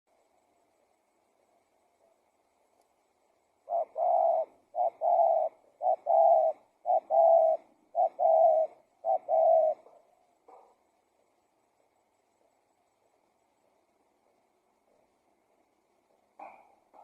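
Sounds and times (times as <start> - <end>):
dove cooing: 3.6 - 10.8.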